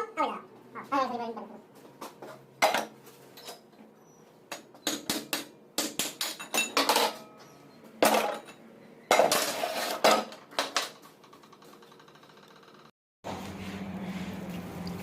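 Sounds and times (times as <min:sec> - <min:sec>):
metal tools clinking and knocking: 0:06.0 - 0:12.3.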